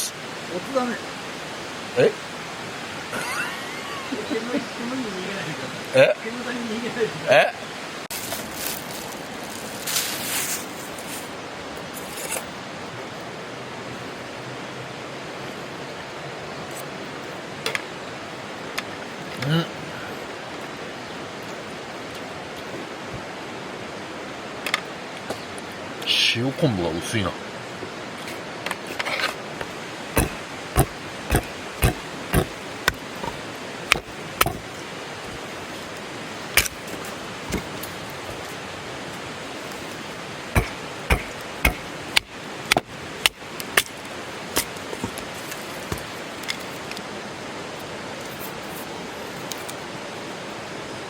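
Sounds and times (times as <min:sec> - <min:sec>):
campfire crackling: 0:08.0 - 0:14.4, 0:28.6 - 0:47.1.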